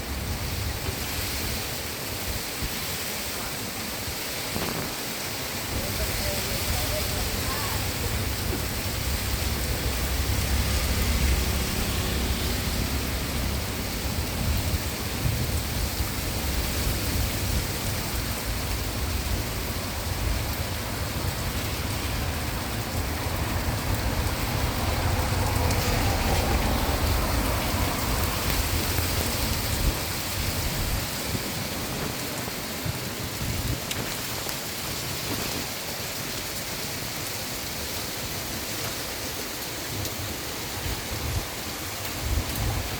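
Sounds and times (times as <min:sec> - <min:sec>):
heavy rain falling: 0:00.0 - 0:42.9
low thunder rumble: 0:05.7 - 0:33.9.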